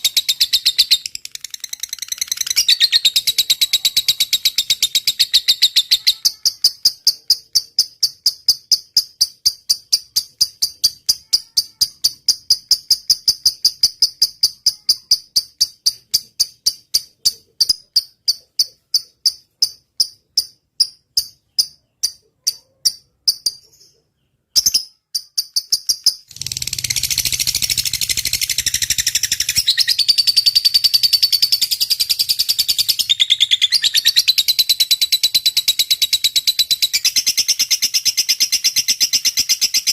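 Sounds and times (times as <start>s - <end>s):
lovebird high chattering: 0.0s - 39.9s
lovebird high repeated chirps: 0.0s - 39.9s.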